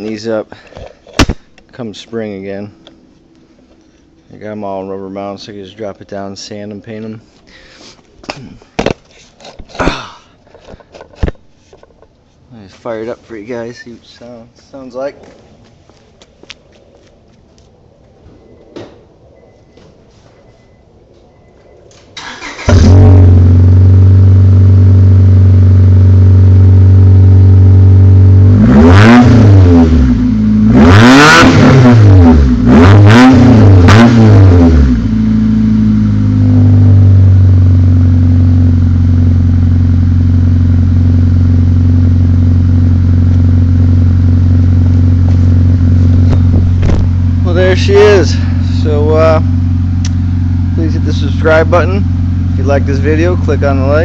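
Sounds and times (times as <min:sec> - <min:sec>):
car engine cranking: 0:22.2 - 0:23.7
car engine revving: 0:22.2 - 0:54.0
car engine idling loudly: 0:37.2 - 0:54.0.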